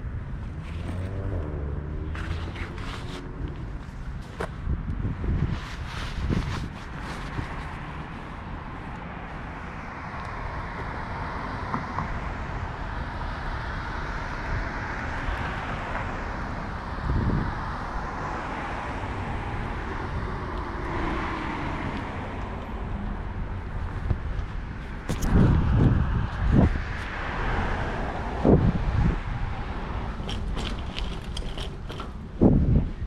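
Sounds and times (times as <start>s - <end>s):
city street traffic: 0.0s - 33.0s
low rumble on microphone: 21.8s - 27.1s.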